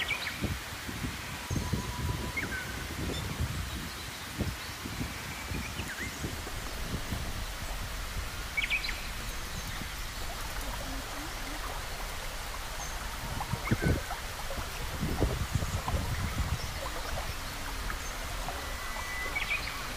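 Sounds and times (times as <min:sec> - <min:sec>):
flowing river water: 0:00.0 - 0:19.9
low thumps: 0:06.2 - 0:19.9
bird chirps: 0:06.3 - 0:19.9.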